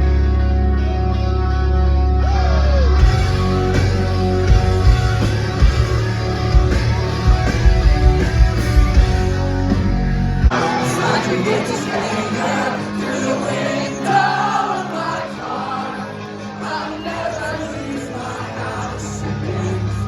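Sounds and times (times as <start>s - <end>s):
heavy bass: 0.0s - 11.2s
distorted guitar: 0.0s - 20.0s
live rock band playing loud: 2.2s - 20.0s
drums: 2.8s - 14.4s.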